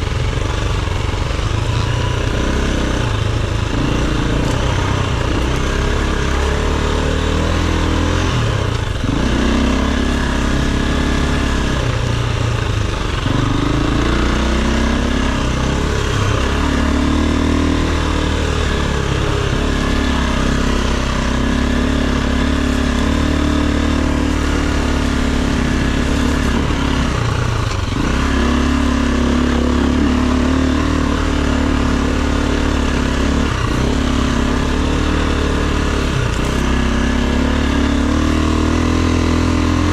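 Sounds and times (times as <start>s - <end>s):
dirt bike engine: 0.0s - 39.9s.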